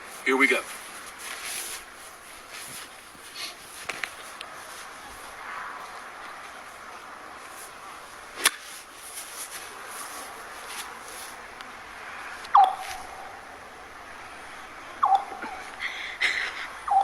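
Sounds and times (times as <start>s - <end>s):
golf club hitting ball: 8.4s - 8.6s.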